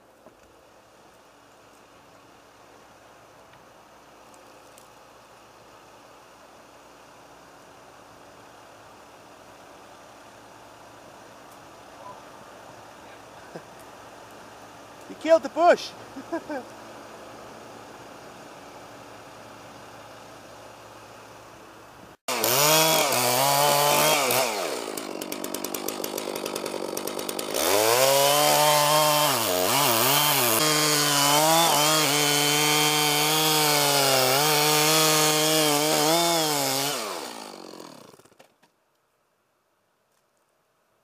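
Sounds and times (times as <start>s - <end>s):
chainsaw revving: 22.3s - 38.4s.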